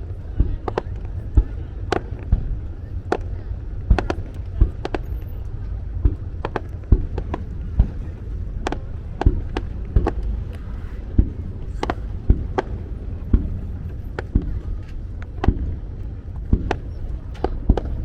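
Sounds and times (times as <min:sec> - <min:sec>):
fireworks bursting with echoes: 0:00.0 - 0:18.0
low rumble: 0:00.0 - 0:18.0.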